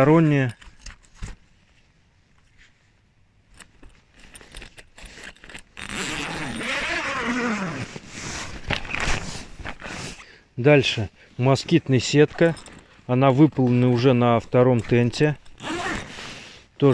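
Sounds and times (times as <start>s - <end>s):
metal zipper sliders clicking: 3.6s - 8.0s, 14.8s - 16.2s
fabric rustling: 4.0s - 10.2s
zipper rasping: 4.1s - 10.3s, 13.6s - 16.5s.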